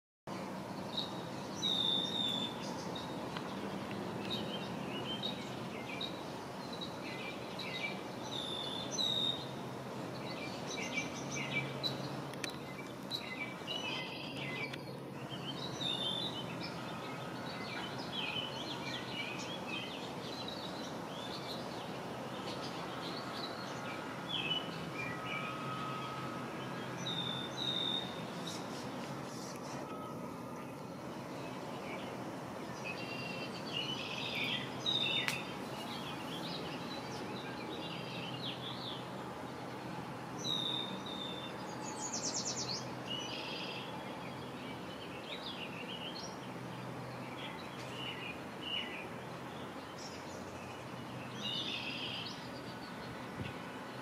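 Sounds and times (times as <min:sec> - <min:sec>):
songbirds chirping and calling: 0:00.3 - 0:54.0.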